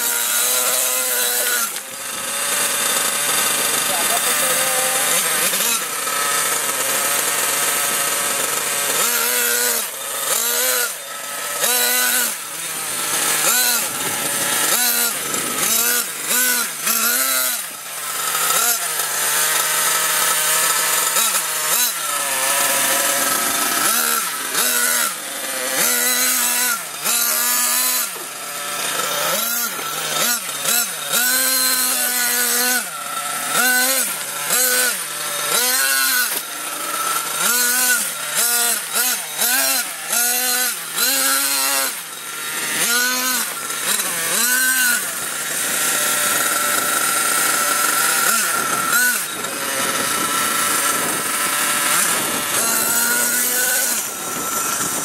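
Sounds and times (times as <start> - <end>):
rc truck engine revving: 0.0 - 55.0.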